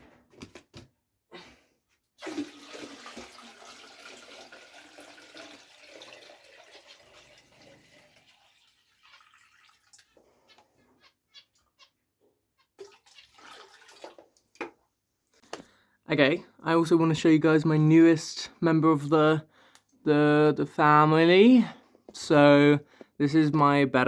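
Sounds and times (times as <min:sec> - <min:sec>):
water pouring into fish tank: 0:02.2 - 0:10.3, 0:12.8 - 0:14.6
water dripping: 0:02.2 - 0:10.6, 0:12.8 - 0:14.9.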